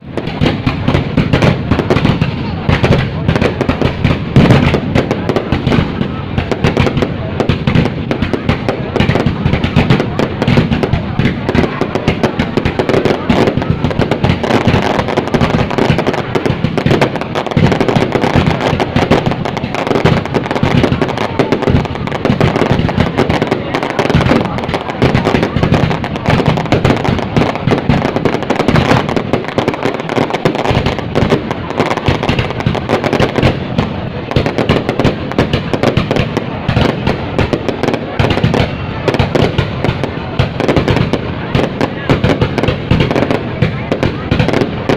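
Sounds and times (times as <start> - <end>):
fireworks crackling and banging: 0.0 - 44.9.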